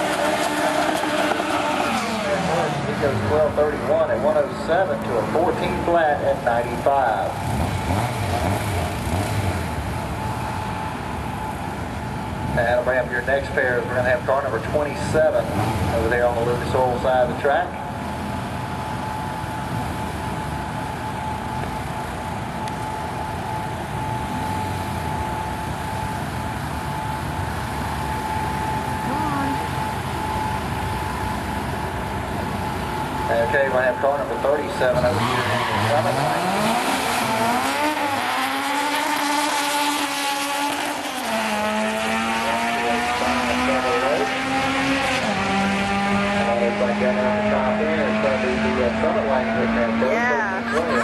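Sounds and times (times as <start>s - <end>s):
car engines idling: 0.0s - 51.0s
thin constant whine: 16.7s - 34.9s.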